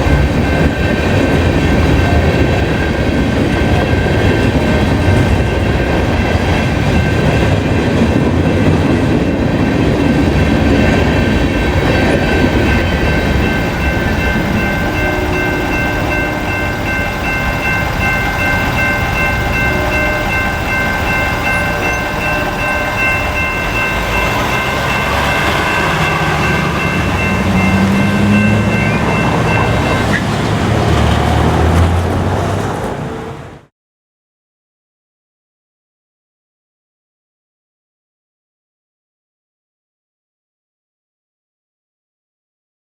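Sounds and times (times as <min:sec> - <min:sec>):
train wheels rumbling and clattering: 0:00.0 - 0:33.7
high-pitched ringing tone: 0:09.8 - 0:30.2.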